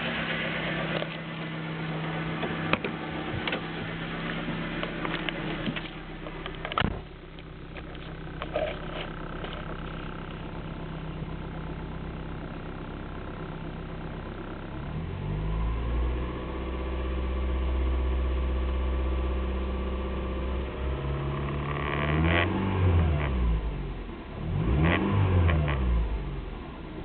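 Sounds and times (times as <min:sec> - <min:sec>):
car engine revving: 0:20.1 - 0:26.8.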